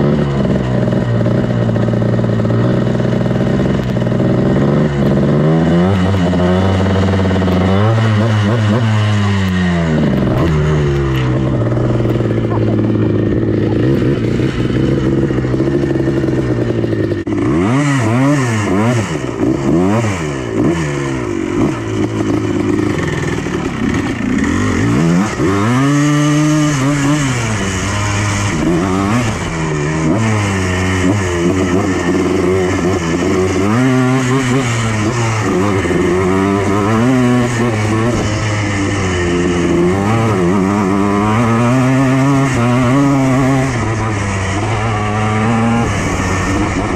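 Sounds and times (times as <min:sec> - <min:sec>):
two-stroke engine revving: 0:00.0 - 0:46.9.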